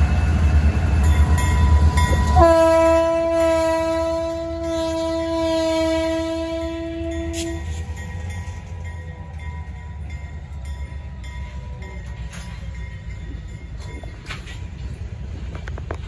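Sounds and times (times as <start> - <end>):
locomotive horn: 2.1 - 8.7.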